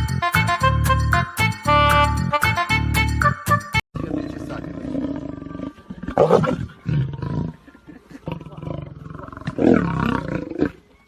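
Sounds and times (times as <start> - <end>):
large animal roaring: 4.0 - 7.6, 8.2 - 10.8.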